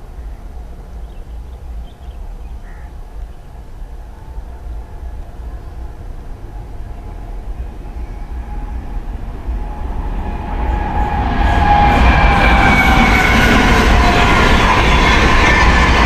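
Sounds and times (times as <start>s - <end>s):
train rushing past: 0.0s - 16.0s
high wheel and rail tones: 4.6s - 16.0s.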